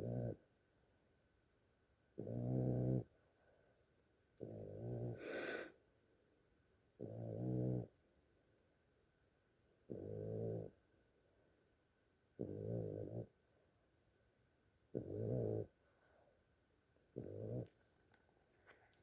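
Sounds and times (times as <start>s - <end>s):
dog snoring: 0.0s - 0.4s, 2.2s - 3.1s, 4.4s - 5.7s, 7.0s - 8.0s, 9.9s - 10.8s, 12.4s - 13.4s, 14.9s - 15.8s, 17.2s - 17.7s
hissing breath: 5.2s - 5.7s.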